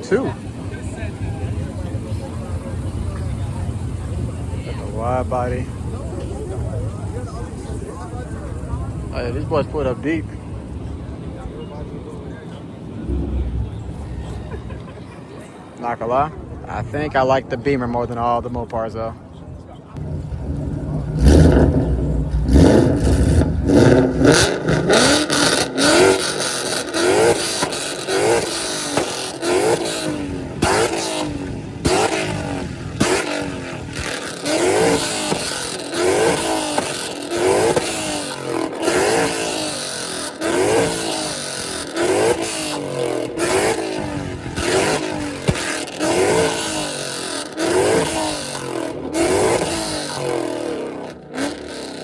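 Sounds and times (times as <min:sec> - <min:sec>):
car exhaust revving: 0:00.0 - 0:11.9, 0:12.8 - 0:15.3, 0:20.0 - 0:52.0
exhaust pops and cracks: 0:20.0 - 0:39.6, 0:41.5 - 0:50.3.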